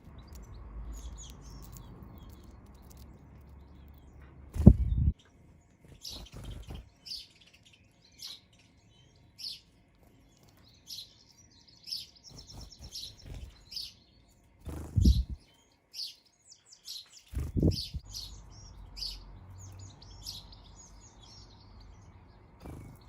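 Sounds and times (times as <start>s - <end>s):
birds chirping: 0.0s - 23.0s
bird trill: 3.6s - 23.0s
low thumps: 4.6s - 5.1s.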